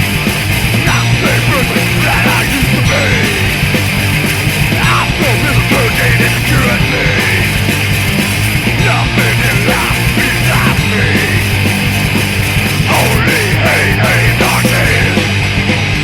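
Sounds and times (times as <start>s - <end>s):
punk rock band playing: 0.0s - 16.0s.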